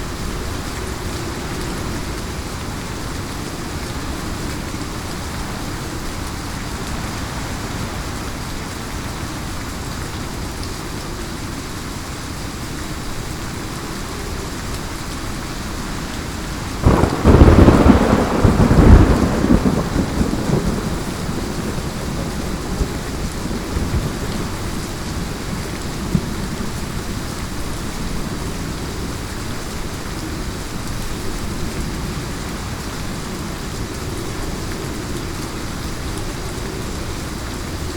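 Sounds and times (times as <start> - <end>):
heavy rain: 0.0 - 37.9
thunderclap: 16.8 - 24.5.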